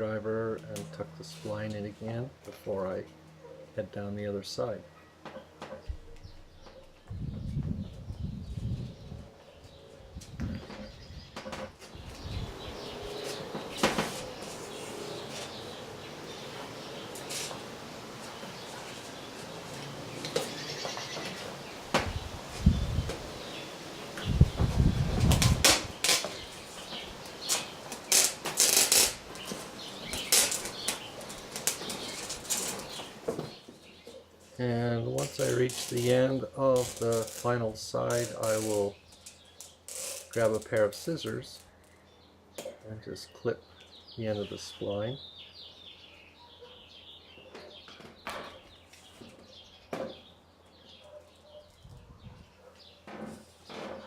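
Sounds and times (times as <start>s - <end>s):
birds chirping: 0.0s - 54.0s
screen mesh rustling and crackling: 10.6s - 41.8s.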